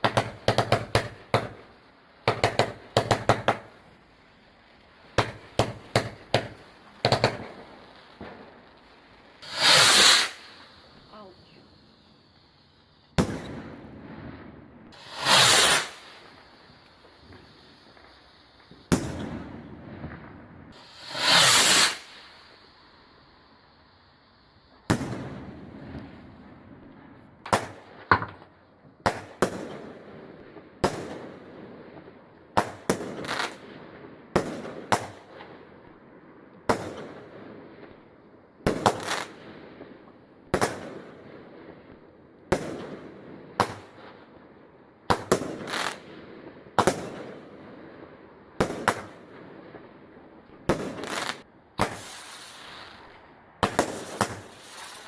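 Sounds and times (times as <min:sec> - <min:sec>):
fireworks bangs: 0:00.0 - 0:22.9, 0:24.6 - 0:44.4, 0:45.0 - 0:55.0.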